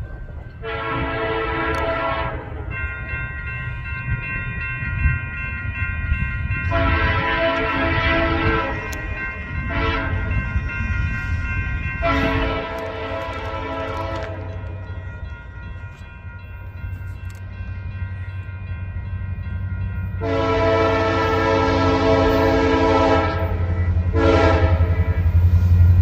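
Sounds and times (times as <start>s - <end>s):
locomotive air horn: 0.6s - 2.6s, 6.7s - 9.0s, 9.7s - 10.3s, 12.0s - 14.6s, 20.2s - 25.2s.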